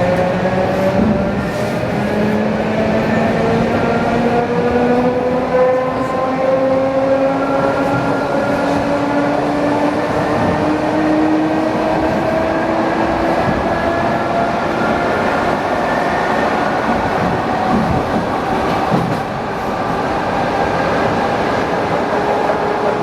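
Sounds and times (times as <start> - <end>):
wheels rumbling on track: 0.0 - 23.0.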